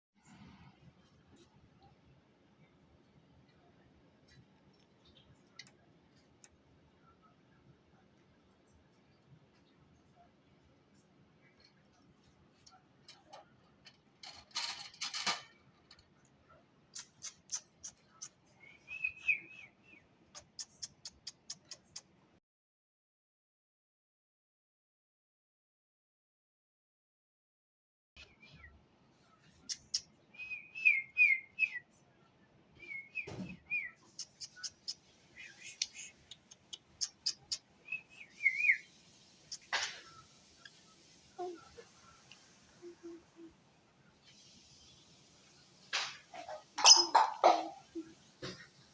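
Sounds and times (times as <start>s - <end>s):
lovebird chirps: 17.0s - 21.8s, 29.4s - 31.9s, 32.8s - 41.9s, 46.5s - 48.0s.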